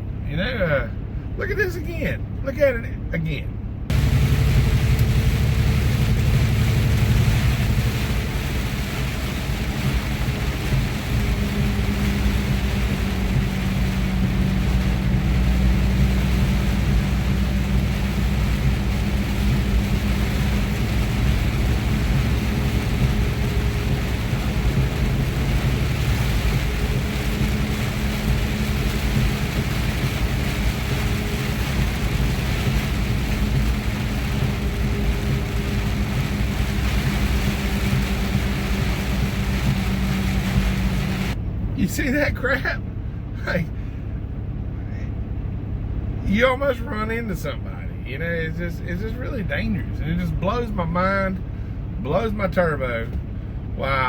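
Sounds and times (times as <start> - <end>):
road noise: 0.0 - 54.0
truck diesel engine running: 0.0 - 54.0
rain: 3.9 - 44.0.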